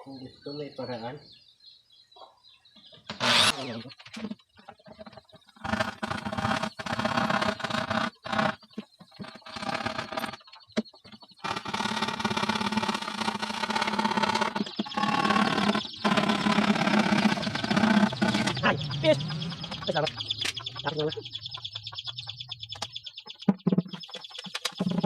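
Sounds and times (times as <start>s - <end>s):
electric power drill running: 3.1s - 3.6s, 11.4s - 18.5s.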